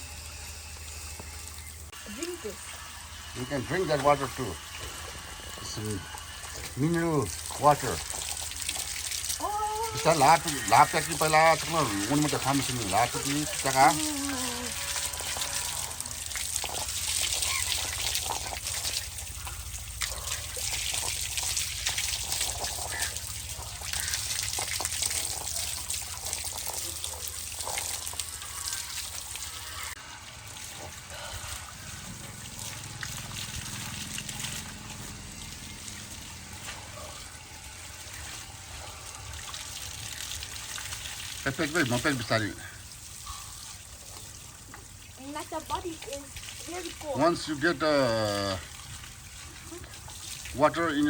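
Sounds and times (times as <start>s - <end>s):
spring water trickling and splashing: 0.0s - 51.0s.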